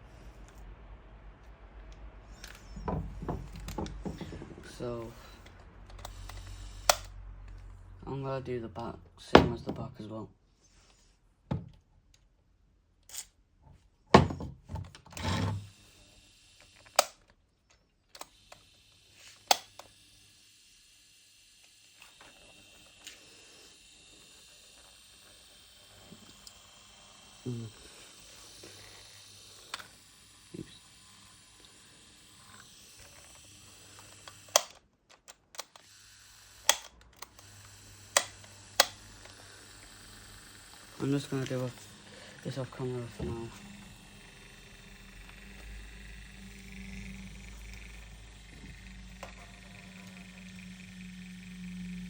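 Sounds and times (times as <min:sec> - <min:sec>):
plastic fan parts knocking: 0:02.8 - 0:04.7.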